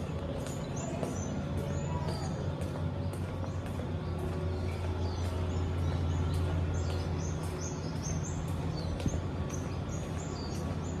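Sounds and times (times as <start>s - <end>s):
small birds chirping: 0.0s - 11.0s
steady low hum: 0.0s - 11.0s.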